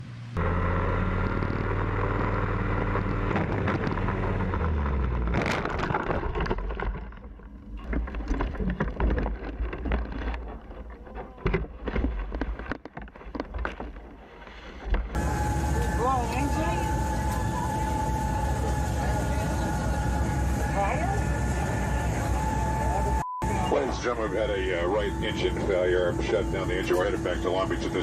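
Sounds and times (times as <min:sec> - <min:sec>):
vehicle engine drone: 0:00.0 - 0:12.1, 0:15.0 - 0:28.0
knocks and rattles: 0:03.1 - 0:15.2.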